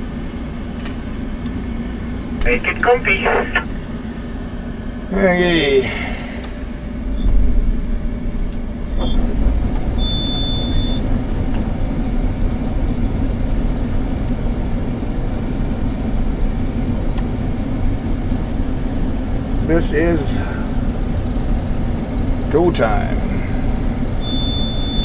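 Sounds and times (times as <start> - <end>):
diesel engine running: 0.0 - 7.2, 8.0 - 25.0
high electronic beep: 24.2 - 25.0.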